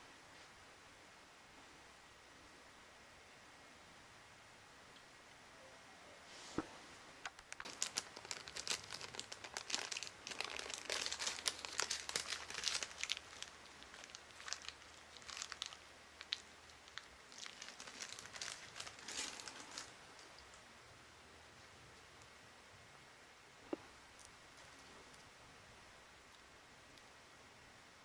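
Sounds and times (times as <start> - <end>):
crinkling of crumpled material: 6.4 - 20.7.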